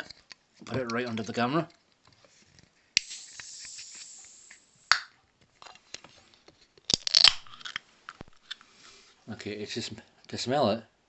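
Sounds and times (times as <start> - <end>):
carbonation fizzing hiss: 3.0 - 5.1.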